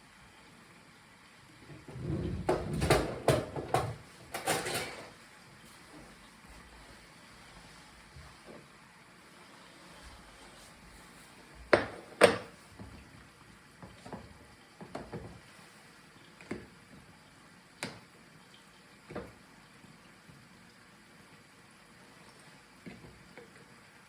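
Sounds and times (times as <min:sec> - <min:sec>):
kitchen utensils clinking: 0:02.7 - 0:05.2.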